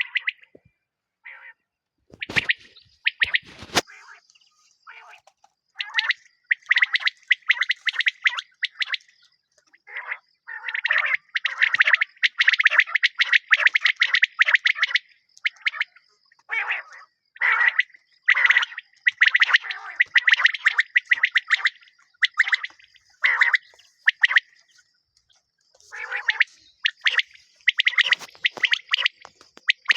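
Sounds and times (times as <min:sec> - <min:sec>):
birds chirping: 0:01.3 - 0:10.7, 0:18.1 - 0:29.9
bird chattering: 0:25.8 - 0:29.9.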